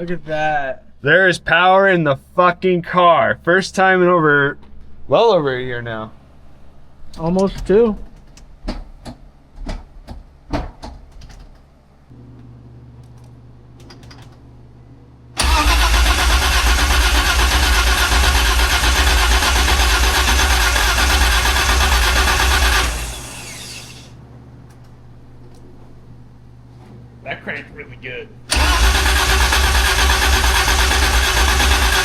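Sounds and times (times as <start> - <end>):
steady low hum: 0.0 - 32.0
engine cranking on starter: 15.4 - 24.1, 28.5 - 32.0.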